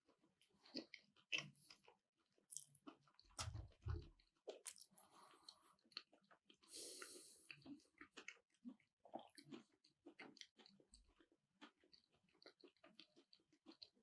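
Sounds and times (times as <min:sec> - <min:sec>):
close-up chewing: 0:00.0 - 0:14.0
soft low thumps: 0:03.4 - 0:04.1.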